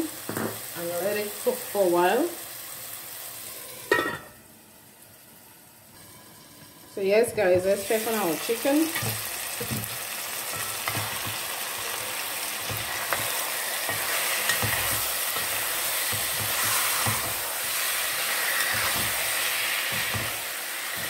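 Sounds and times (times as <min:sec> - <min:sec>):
chicken sizzling in a pot: 0:00.0 - 0:21.0
spoon scraping a pot: 0:12.8 - 0:20.4.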